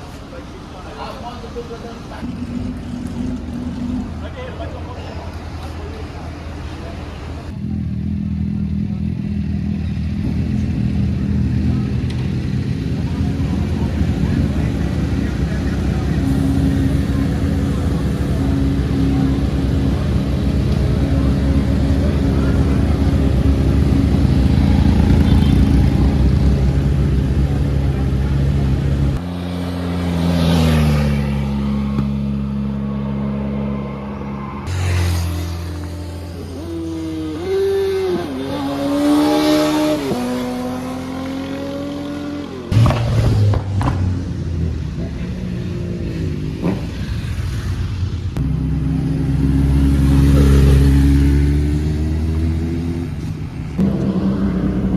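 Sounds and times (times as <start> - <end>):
motorcycle engine running: 7.4 - 32.9.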